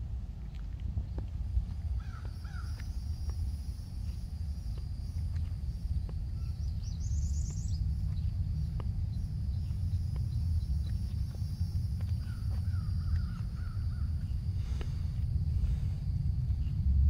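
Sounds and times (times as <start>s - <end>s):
low rumble: 0.0s - 17.0s
birds chirping: 1.0s - 15.2s
wavy bird calls: 2.0s - 2.8s, 12.2s - 14.8s.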